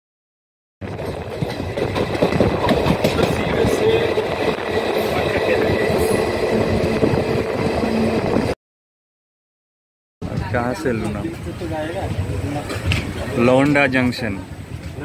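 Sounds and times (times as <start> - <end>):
train wheels clattering on rails: 0.8 - 7.8
train coach rattling: 0.8 - 8.6.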